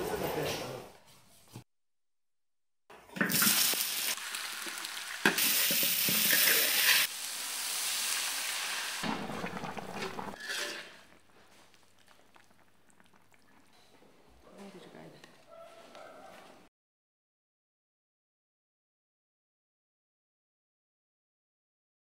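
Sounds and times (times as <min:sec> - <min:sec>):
meat sizzling in hot oil: 0:03.2 - 0:11.2
water pouring into hot wok: 0:03.2 - 0:13.6.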